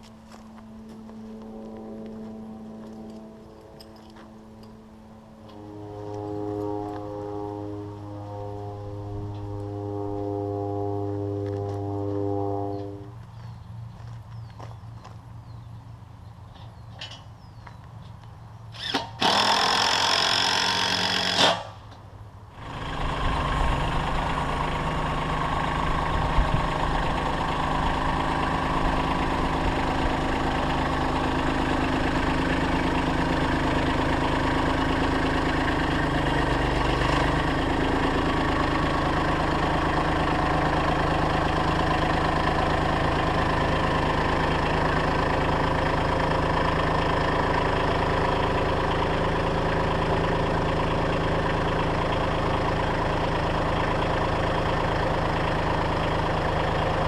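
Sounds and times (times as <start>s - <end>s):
engine starting and running: 16.5s - 57.0s
loud noisy burst: 18.8s - 21.8s.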